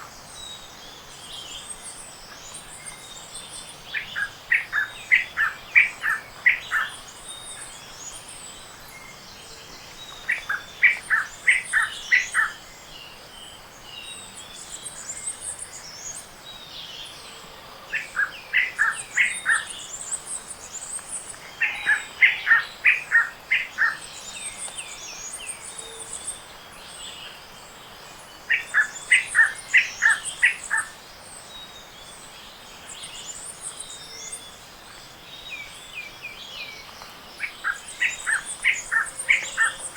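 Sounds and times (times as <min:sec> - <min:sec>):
thin high-pitched bird calls: 0:18.0 - 0:26.4, 0:28.5 - 0:31.0, 0:36.9 - 0:39.9.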